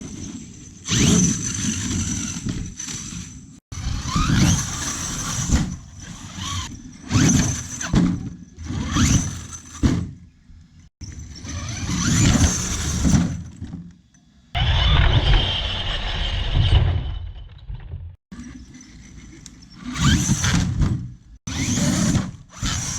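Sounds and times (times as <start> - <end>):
electric motor whining: 14.6 - 16.7.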